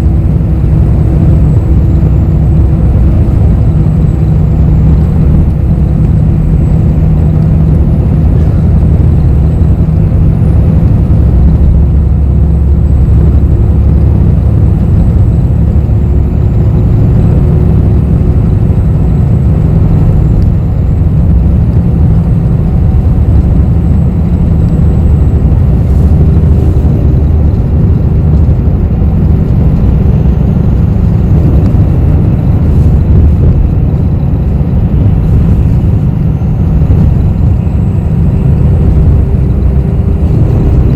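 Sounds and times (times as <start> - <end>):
bus engine rumble: 0.0 - 40.9.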